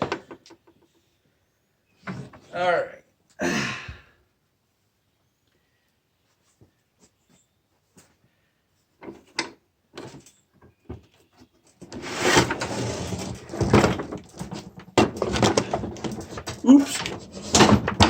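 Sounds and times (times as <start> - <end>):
engine parts clattering and scraping: 11.6 - 18.0.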